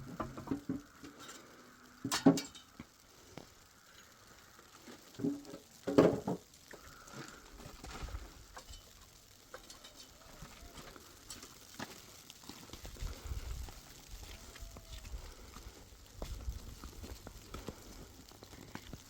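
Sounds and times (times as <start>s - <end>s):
hard objects knocking and clattering: 5.2s - 6.4s.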